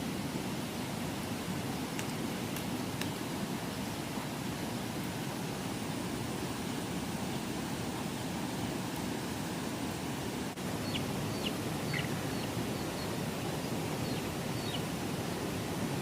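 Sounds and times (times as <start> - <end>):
steady rain: 0.0 - 16.0
small bird chirping: 10.8 - 14.9.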